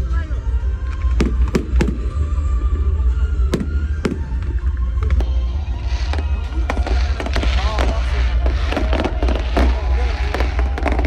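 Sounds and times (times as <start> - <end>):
music: 0.0 - 11.0
fireworks bangs: 0.8 - 11.0
fireworks crackling hiss: 3.5 - 11.0.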